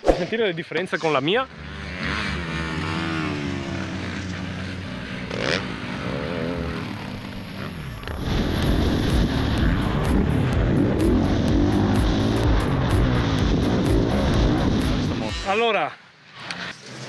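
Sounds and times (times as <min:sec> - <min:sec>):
motorcycle engine revving: 0:00.9 - 0:17.0.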